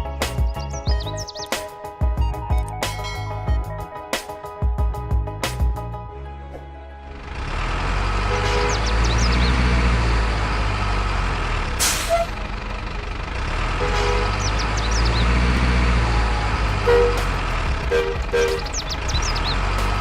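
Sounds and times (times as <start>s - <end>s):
truck engine running: 7.0s - 20.0s.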